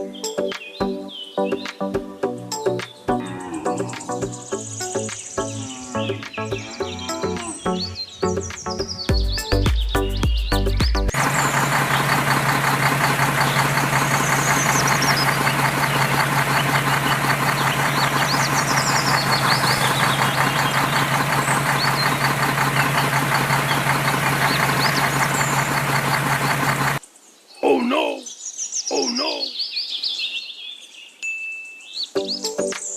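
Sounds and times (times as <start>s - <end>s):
birds chirping faintly: 2.7s - 31.2s
engine knocking rhythmically: 10.6s - 27.0s.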